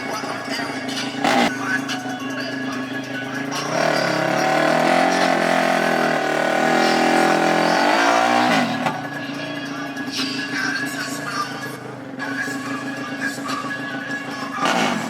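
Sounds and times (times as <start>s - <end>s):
racing engine accelerating: 0.0s - 15.0s.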